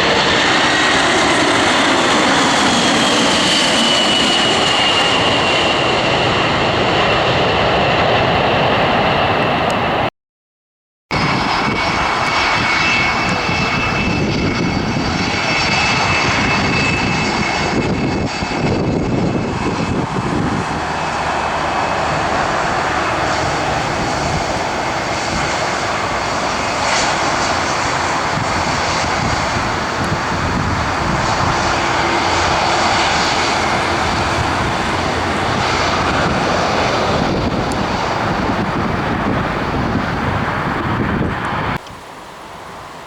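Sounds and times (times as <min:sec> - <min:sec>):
aircraft engines roaring: 0:00.0 - 0:10.1, 0:11.1 - 0:43.0.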